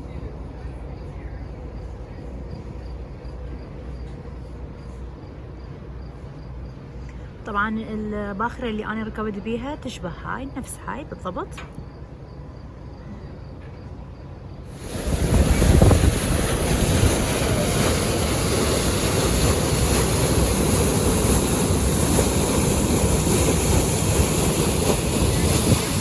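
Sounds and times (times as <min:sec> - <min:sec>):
rushing water: 0:14.7 - 0:26.0
wind buffeting microphone: 0:14.7 - 0:26.0.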